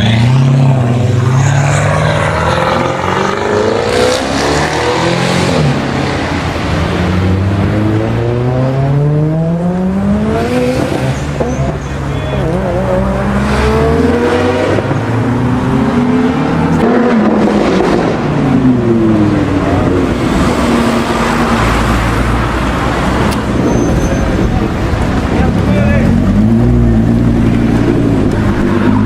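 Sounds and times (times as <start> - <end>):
sports car engine accelerating: 24.7 - 29.0.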